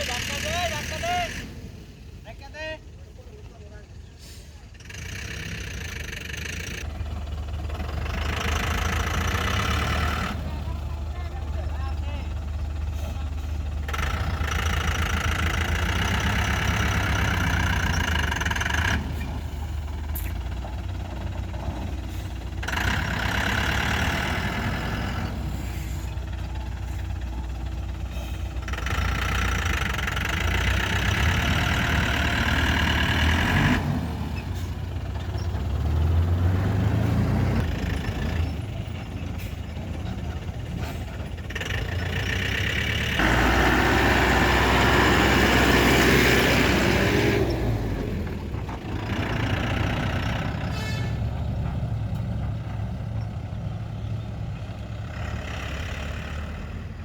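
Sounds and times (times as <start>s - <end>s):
excavator digging and loading sand: 0.0s - 2.8s, 3.4s - 57.0s
excavator diesel engine rumbling: 0.0s - 57.0s.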